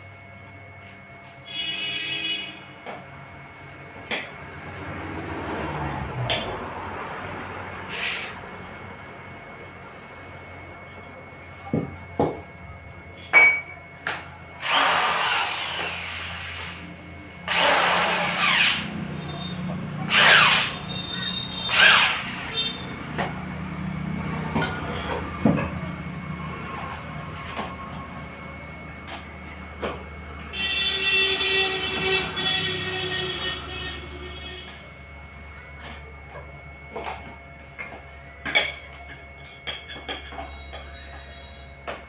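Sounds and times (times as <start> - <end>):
tool rasping strokes: 14.6 - 16.8, 17.5 - 19.0, 20.1 - 20.9, 21.6 - 22.8.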